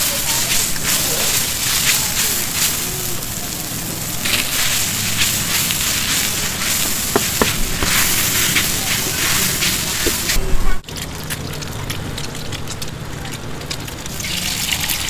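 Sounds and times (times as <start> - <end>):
noodles sizzling in a hot pan: 0.0 - 10.4.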